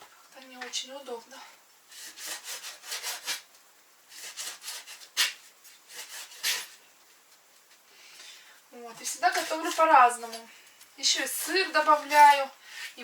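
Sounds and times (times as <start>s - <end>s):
knife sawing through bread: 1.9s - 3.4s, 4.1s - 6.8s, 11.2s - 13.0s.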